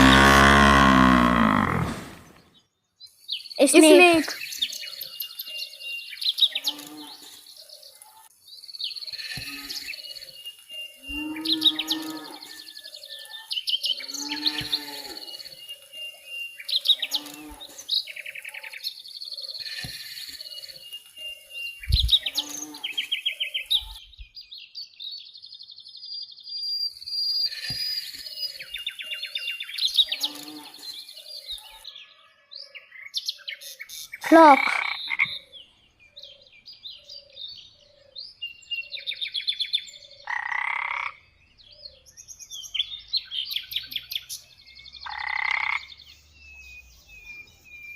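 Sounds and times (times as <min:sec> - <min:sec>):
wavering animal calls: 0:00.0 - 0:02.4
birds chirping and trilling: 0:00.0 - 0:47.9.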